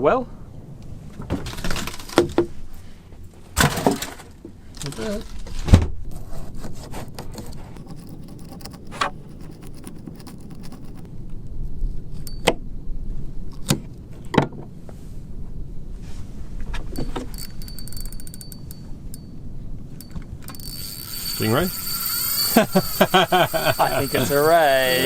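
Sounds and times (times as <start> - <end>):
fast fine ticking: 7.8 - 11.1, 20.5 - 25.0
thin high tone: 20.5 - 25.0.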